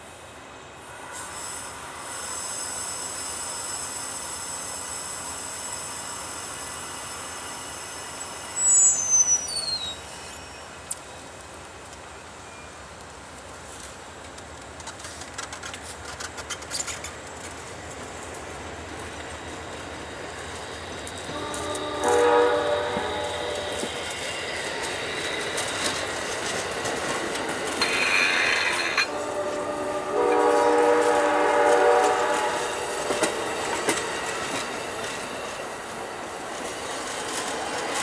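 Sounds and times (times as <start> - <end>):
train wheels squealing on rails: 0.0 - 11.4, 14.8 - 38.0
wheels clacking over rail joints: 13.0 - 29.6, 30.2 - 38.0.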